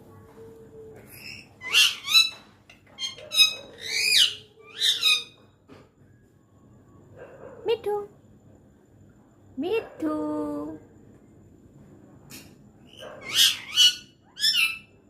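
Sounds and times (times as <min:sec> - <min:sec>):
faint steady hum: 0:00.0 - 0:15.0
parrot squawking: 0:01.2 - 0:05.4, 0:12.9 - 0:14.9.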